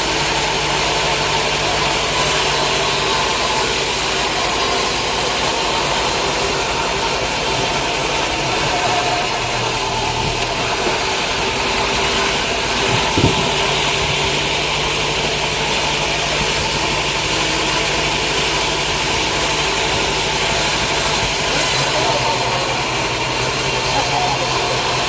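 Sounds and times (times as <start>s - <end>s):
sawmill machinery humming: 0.0s - 25.0s
single knock: 12.9s - 13.7s.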